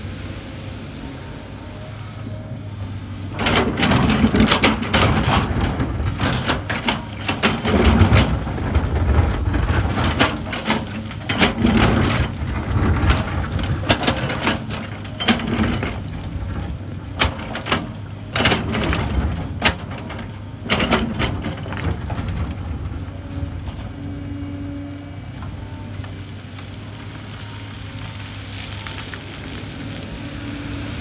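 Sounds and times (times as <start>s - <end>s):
excavator diesel engine: 0.0s - 31.0s
bucket clanking and scraping rock: 3.3s - 23.0s.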